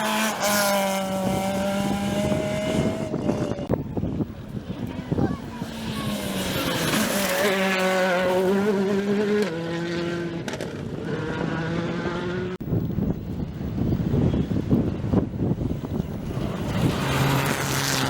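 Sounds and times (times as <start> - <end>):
rally car engine at high revs: 0.0 - 3.7, 5.6 - 12.6, 16.4 - 18.0.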